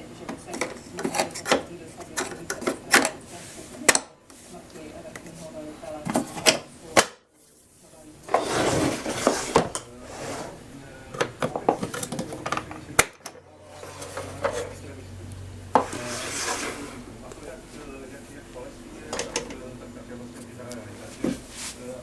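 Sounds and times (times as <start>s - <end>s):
clattering of hard parts: 8.3s - 14.8s, 19.0s - 19.7s.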